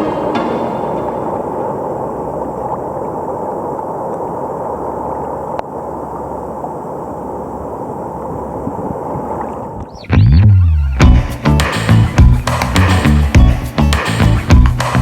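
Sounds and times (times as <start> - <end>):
wind on microphone: 7.6 - 10.0.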